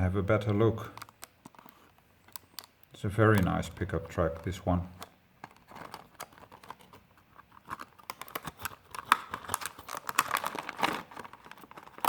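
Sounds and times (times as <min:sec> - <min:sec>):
packaging clicks and crinkles: 0:00.0 - 0:12.0.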